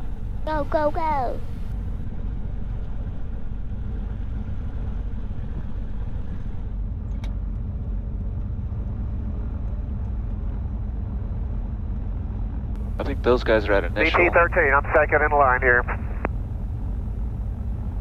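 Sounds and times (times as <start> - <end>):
airplane piston engine rumbling: 12.2 - 18.0.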